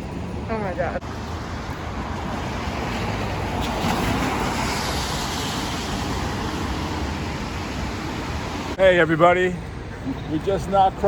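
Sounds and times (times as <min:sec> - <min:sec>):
tyres hissing on wet pavement: 0:01.5 - 0:08.8.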